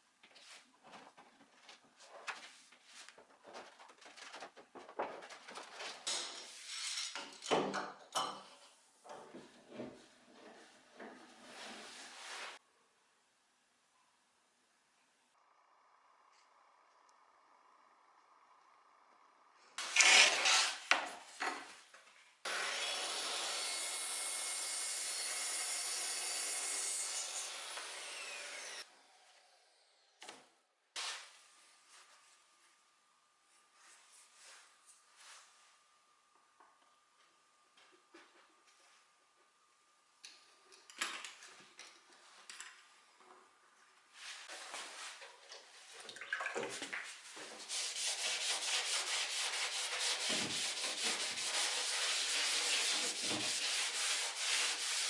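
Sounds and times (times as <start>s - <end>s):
tool rubbing on wood: 47.6s - 55.0s.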